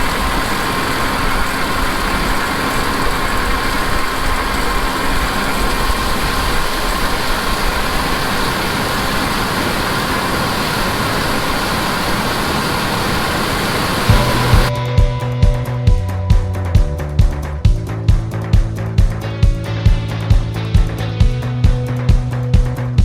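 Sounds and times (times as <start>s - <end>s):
faint constant whine: 0.0s - 21.3s
heavy machinery engine drone: 0.0s - 21.6s
music: 14.1s - 23.0s.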